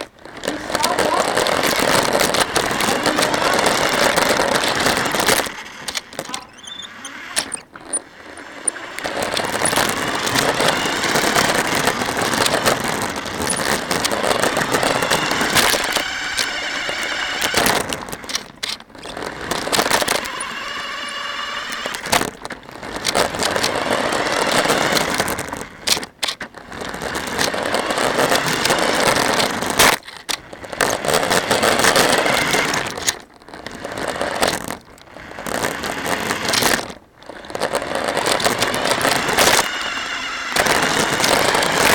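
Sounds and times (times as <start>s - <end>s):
faint motor whine: 0.0s - 26.0s, 35.0s - 41.9s
radio-controlled car driving: 0.0s - 41.9s.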